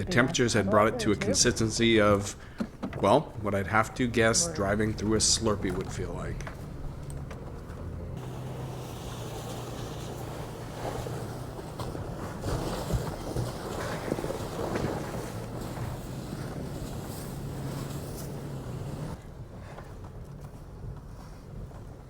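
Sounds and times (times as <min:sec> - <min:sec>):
truck engine running: 0:00.0 - 0:22.0
tyres churning through slush: 0:00.4 - 0:22.0
knocks and thumps from truck: 0:02.3 - 0:03.5, 0:05.0 - 0:19.2.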